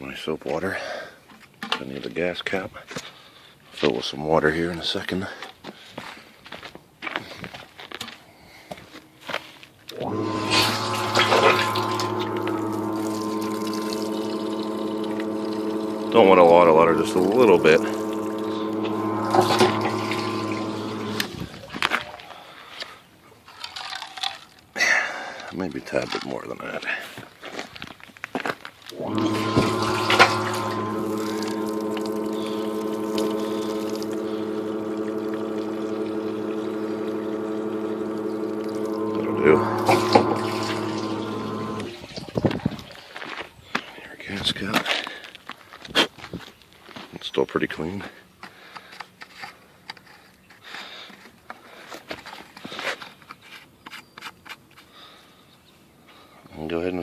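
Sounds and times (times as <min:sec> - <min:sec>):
droning hum of water supply: 0:09.9 - 0:21.6, 0:28.9 - 0:42.8
water running from a tap: 0:10.0 - 0:21.2.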